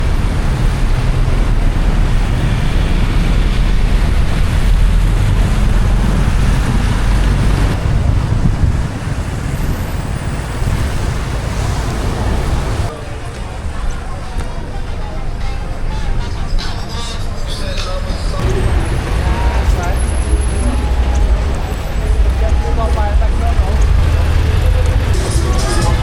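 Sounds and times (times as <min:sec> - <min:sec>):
rain: 0:00.0 - 0:12.9
tyres hissing on wet road: 0:09.0 - 0:12.9.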